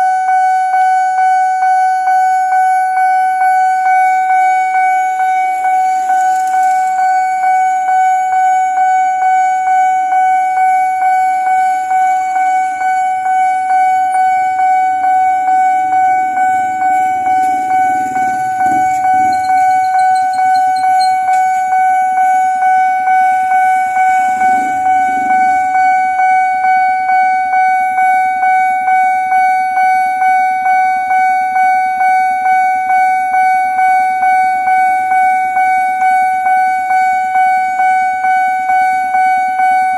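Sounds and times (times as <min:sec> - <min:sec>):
level crossing warning bell: 0:00.0 - 0:39.9
vehicle passing low rumble: 0:13.2 - 0:21.8, 0:23.1 - 0:26.2.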